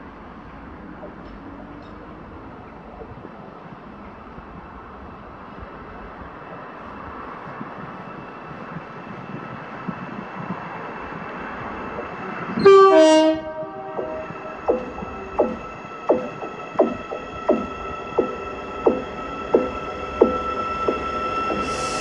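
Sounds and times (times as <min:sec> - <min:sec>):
freight train rumbling: 0:00.0 - 0:22.0
steady locomotive whine: 0:00.0 - 0:22.0
two-tone train horn: 0:12.6 - 0:14.6.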